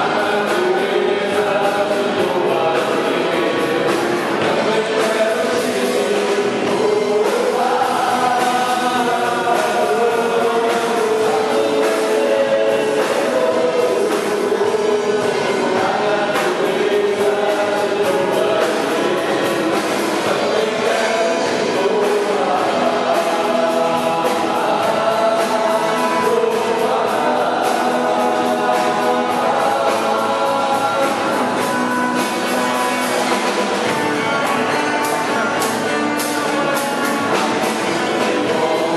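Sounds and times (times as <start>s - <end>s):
choir singing gospel music: 0.0s - 38.9s.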